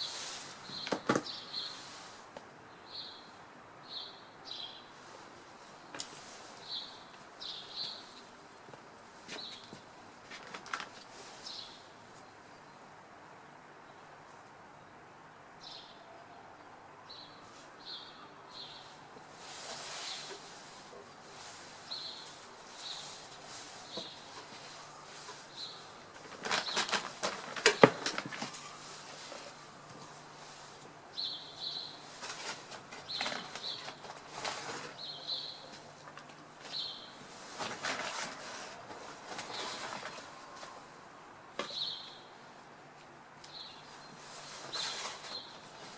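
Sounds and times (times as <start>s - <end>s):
small birds chirping: 0.0s - 2.1s, 2.7s - 8.6s, 9.4s - 9.9s, 11.1s - 12.9s, 17.1s - 19.1s, 19.7s - 37.2s, 41.7s - 42.4s, 43.4s - 45.9s
town background noise: 0.0s - 45.9s
brief rustles: 19.4s - 30.8s, 44.2s - 45.9s.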